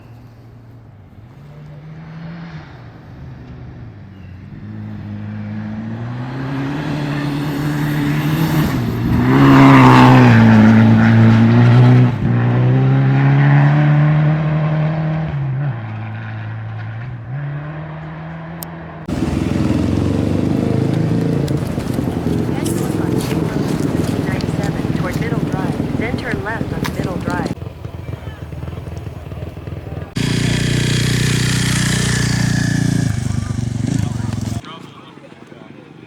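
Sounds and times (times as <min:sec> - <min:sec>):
rally car engine passing: 0:01.4 - 0:34.6
rough engine noise: 0:04.8 - 0:12.9, 0:19.0 - 0:34.6.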